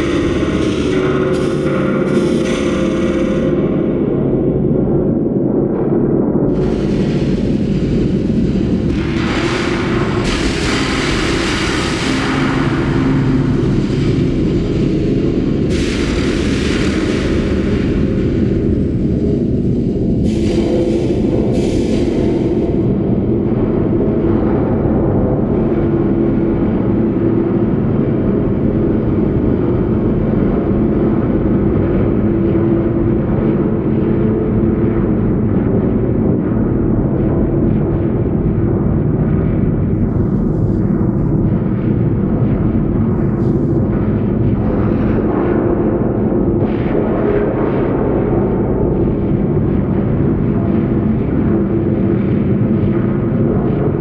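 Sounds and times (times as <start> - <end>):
metal spring rumbling drone: 0.0 - 23.2.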